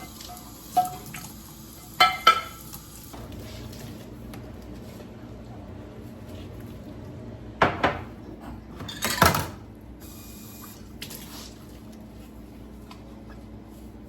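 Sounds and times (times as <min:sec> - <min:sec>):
dishes clattering: 0:02.0 - 0:02.7, 0:07.6 - 0:09.6.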